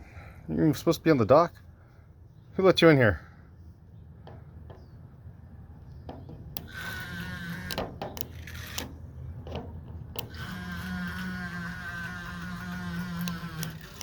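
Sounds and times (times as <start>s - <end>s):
sharp clicks or knocks: 6.0s - 10.5s
small electric motor whining: 6.6s - 9.0s, 10.1s - 14.0s.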